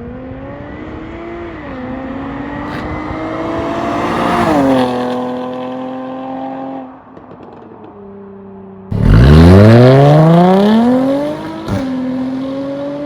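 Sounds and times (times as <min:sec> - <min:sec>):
car engine revving past: 0:00.9 - 0:06.9, 0:08.9 - 0:13.0.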